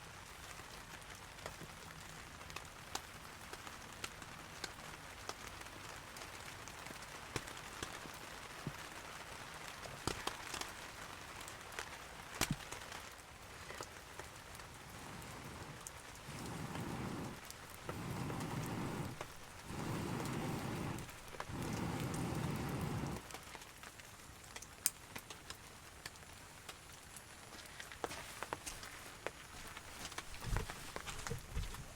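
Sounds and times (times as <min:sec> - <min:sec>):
steady rain falling: 0:00.0 - 0:31.9
sharp raindrop ticks: 0:01.4 - 0:08.8, 0:09.7 - 0:31.4
low rushing sounds: 0:14.9 - 0:23.2.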